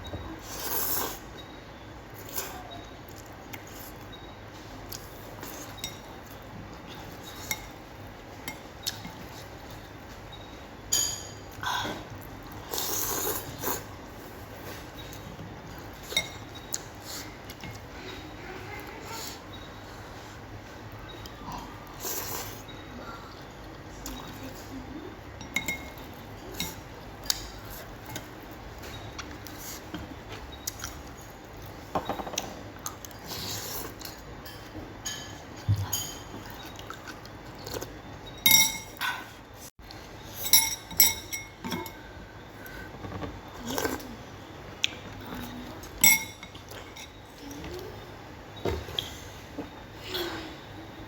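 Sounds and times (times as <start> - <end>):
utensils clinking against a bowl: 2.2 - 13.9, 14.5 - 19.6, 25.3 - 39.3, 40.2 - 42.2, 45.0 - 47.6.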